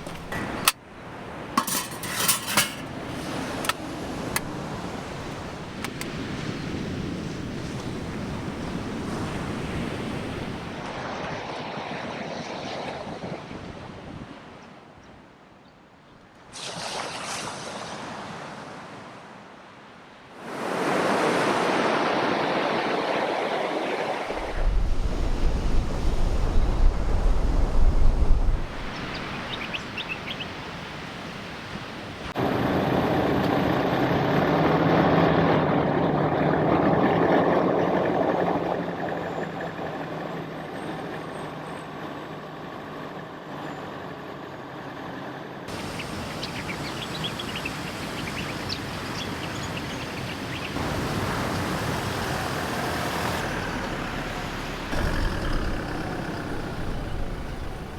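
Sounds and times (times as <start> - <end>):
tyres on track: 0.0 - 6.2, 50.7 - 57.9
wind: 0.0 - 57.9
vehicle engine running: 50.8 - 57.9
heavy low rumble: 53.4 - 57.9.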